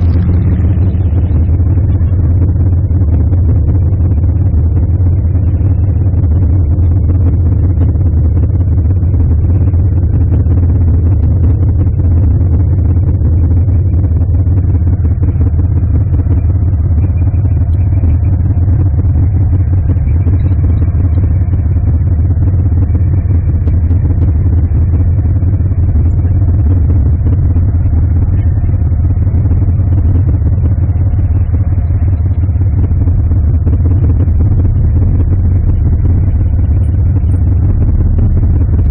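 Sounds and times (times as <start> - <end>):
road noise: 0.0 - 3.2, 23.0 - 38.9
car engine rumble: 0.0 - 38.9.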